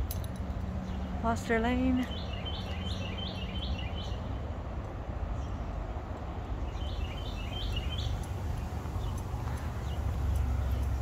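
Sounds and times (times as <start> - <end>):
bird chirping: 2.0 - 4.4, 6.6 - 11.0
low outdoor rumble: 4.1 - 11.0.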